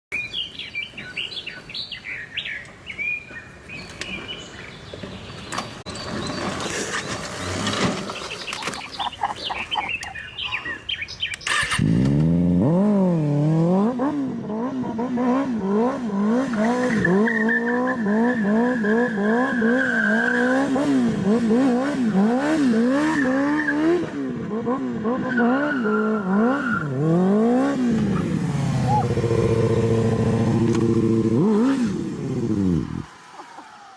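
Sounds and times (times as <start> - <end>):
bird chirps: 8.1 - 11.7
motorcycle engine revving: 11.4 - 33.9.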